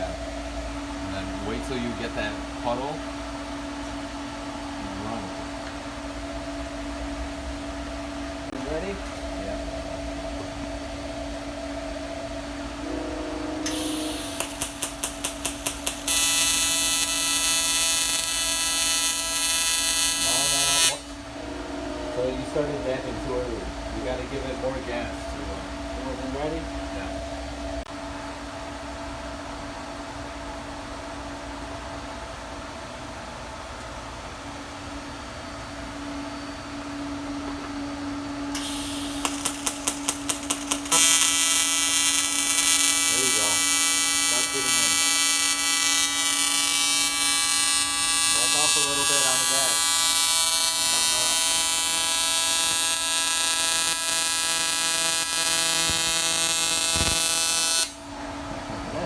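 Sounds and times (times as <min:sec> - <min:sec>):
welding arc buzzing: 0:13.6 - 0:21.3, 0:38.5 - 0:58.1
sharp ticks of arc start: 0:13.7 - 0:17.1, 0:38.6 - 0:43.4
welding arc hiss: 0:13.7 - 0:21.1, 0:38.6 - 0:58.0
crackling clicks of arc strike: 0:14.2 - 0:19.8, 0:39.1 - 0:45.6, 0:53.9 - 0:58.0.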